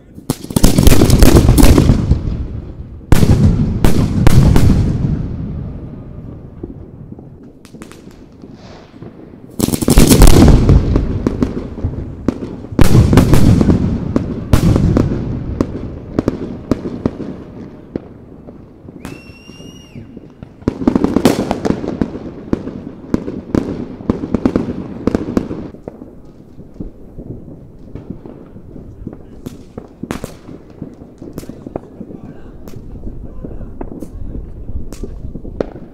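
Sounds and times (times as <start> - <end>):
firework crackling: 0.0 - 35.9
firework shells booming: 0.1 - 35.9
short steady whistle: 19.0 - 20.2.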